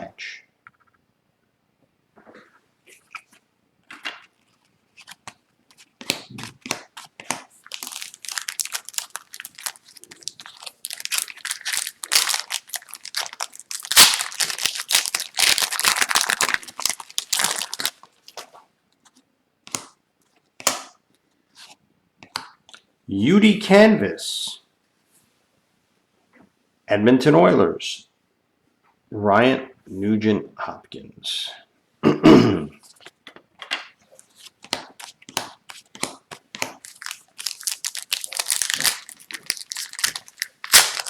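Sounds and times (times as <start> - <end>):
foil wrapper crinkling and tearing: 6.3 - 18.4, 34.2 - 41.0.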